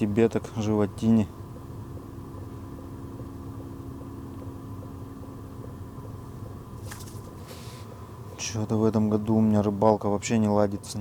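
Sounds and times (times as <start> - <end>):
faint hum: 0.0 - 11.0
brief rustle: 6.8 - 7.8.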